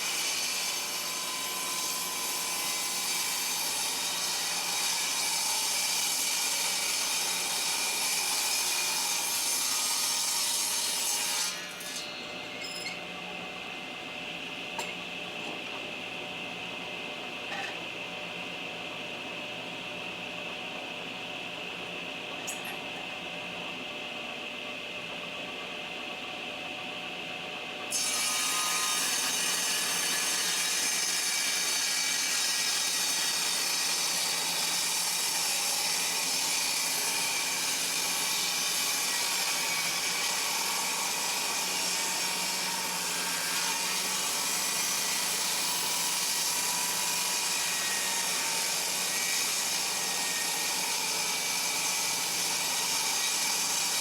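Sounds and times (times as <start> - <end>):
table saw cutting wood: 0.0 - 13.1, 27.9 - 54.0.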